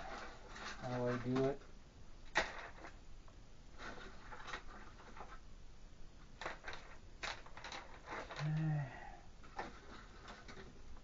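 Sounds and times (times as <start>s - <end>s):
soft rustling: 3.7s - 5.5s, 9.4s - 11.0s.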